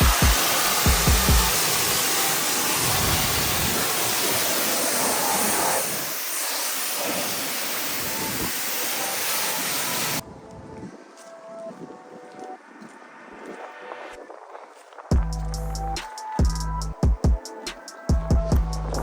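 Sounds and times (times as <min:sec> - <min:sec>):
high-pressure spray hissing: 0:00.0 - 0:10.2.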